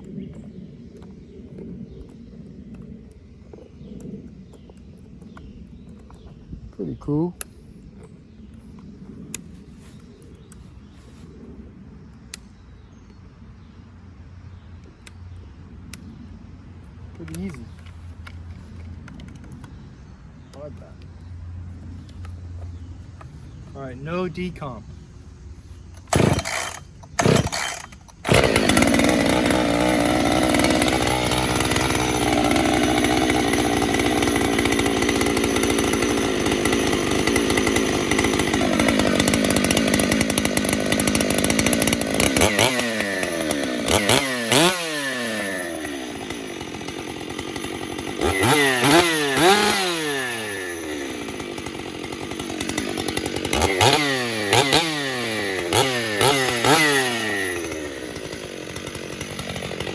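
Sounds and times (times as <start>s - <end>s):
chainsaw engine running and revving: 26.0s - 59.9s.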